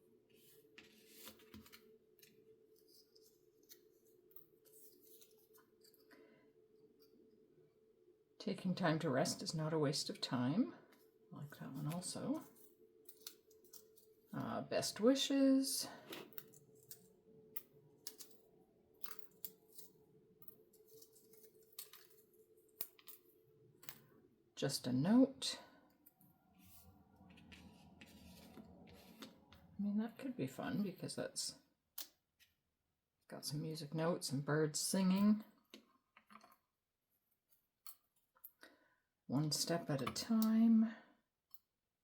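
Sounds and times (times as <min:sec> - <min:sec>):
paper rustling: 0:00.4 - 0:03.8.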